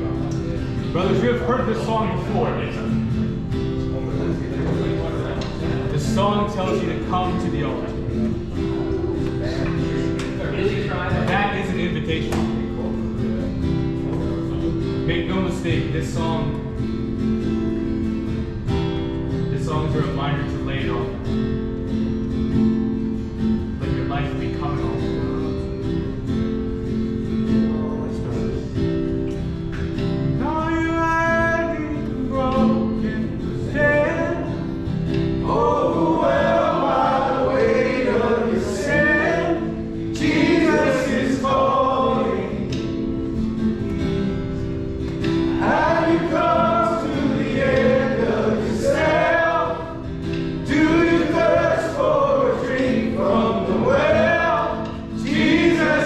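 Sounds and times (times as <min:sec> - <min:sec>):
group of men singing: 0:35.4 - 0:43.1, 0:45.5 - 0:56.0.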